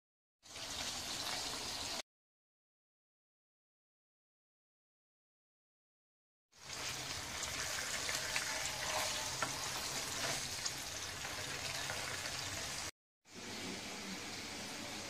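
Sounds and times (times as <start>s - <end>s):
patty sizzling in oil: 0.4s - 2.0s, 6.6s - 15.0s.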